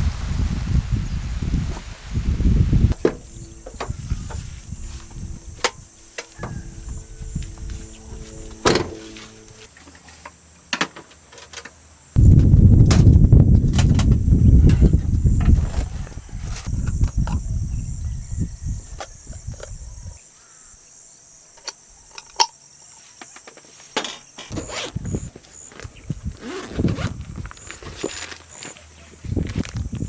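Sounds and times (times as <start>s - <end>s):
wind buffeting microphone: 0.0s - 9.6s, 12.2s - 20.2s, 24.5s - 27.9s, 29.2s - 30.0s
crickets droning: 0.0s - 30.0s.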